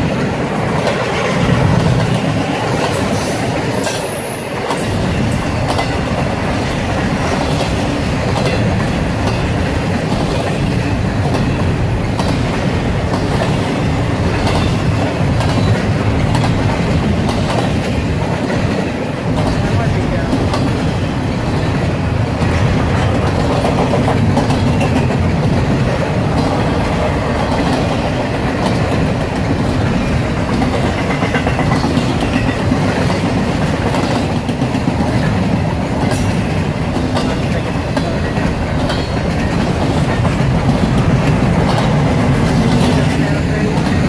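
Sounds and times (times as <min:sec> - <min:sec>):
train wheels rumbling on rail: 0:00.0 - 0:44.0.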